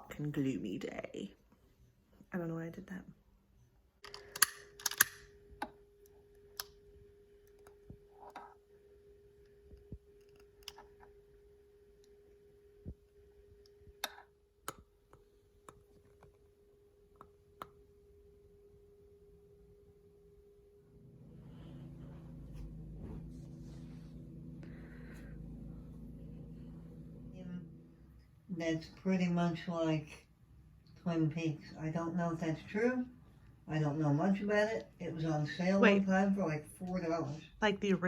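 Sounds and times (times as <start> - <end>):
steady hum: 16.7 - 37.2.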